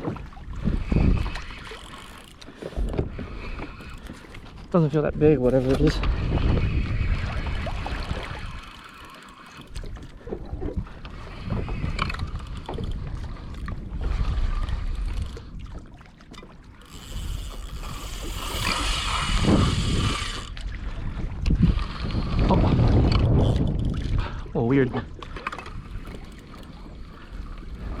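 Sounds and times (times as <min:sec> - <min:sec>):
water noise: 0:00.0 - 0:28.0
wind buffeting microphone: 0:00.0 - 0:28.0
fishing reel knocks and clicks: 0:01.1 - 0:04.3, 0:16.8 - 0:20.6.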